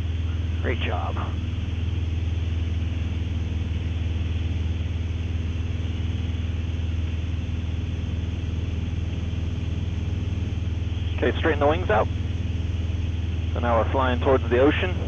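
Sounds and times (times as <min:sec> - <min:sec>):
airplane engine and propeller drone: 0:00.0 - 0:15.0.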